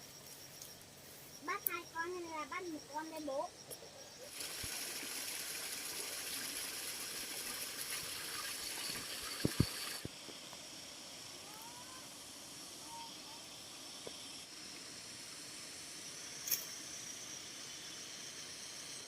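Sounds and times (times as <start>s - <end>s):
steady rushing hiss: 3.9s - 19.0s.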